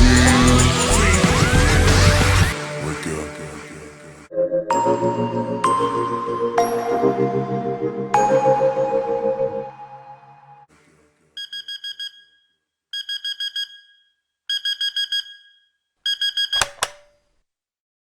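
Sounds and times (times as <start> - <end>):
music: 0.0 - 10.7
alarm clock beeping: 11.4 - 12.4, 13.0 - 17.0
sharp click: 16.5 - 17.2.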